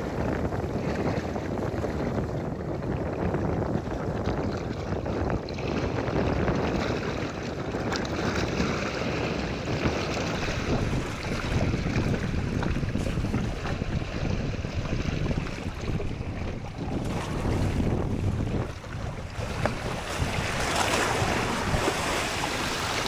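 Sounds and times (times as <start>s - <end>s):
wind buffeting microphone: 0.0s - 23.0s
waves washing: 7.1s - 23.0s.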